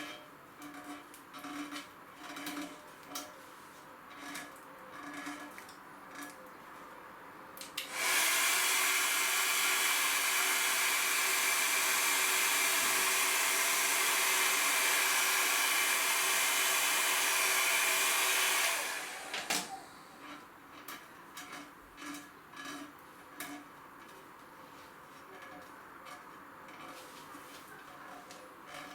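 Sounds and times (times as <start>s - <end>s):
hot-air blower running: 7.8s - 20.2s.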